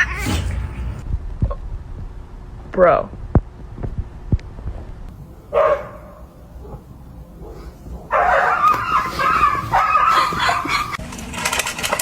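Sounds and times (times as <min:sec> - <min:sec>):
dog barking: 0:05.5 - 0:11.0.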